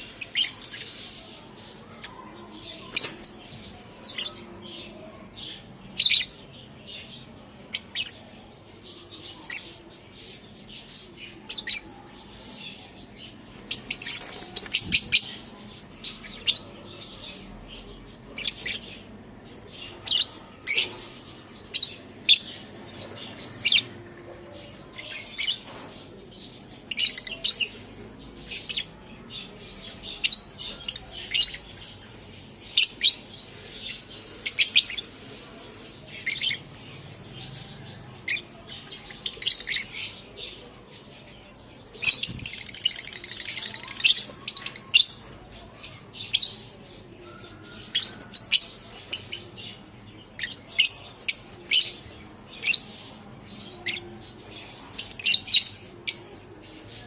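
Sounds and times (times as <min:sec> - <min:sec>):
birds chirping and chattering: 0:00.0 - 0:57.0.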